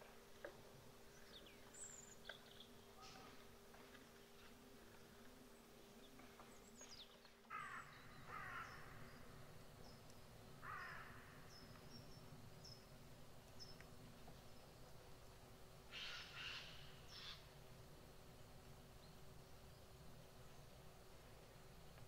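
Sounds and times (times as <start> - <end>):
faint low hum: 0.0 - 22.0
short hoarse bird calls: 15.9 - 17.4.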